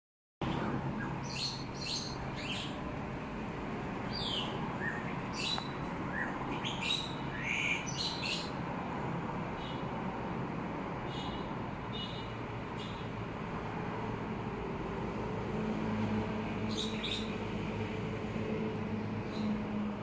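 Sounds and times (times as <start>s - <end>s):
small birds chirping: 0.4s - 2.8s, 4.0s - 8.6s, 9.6s - 9.9s, 11.0s - 13.2s, 16.7s - 17.4s.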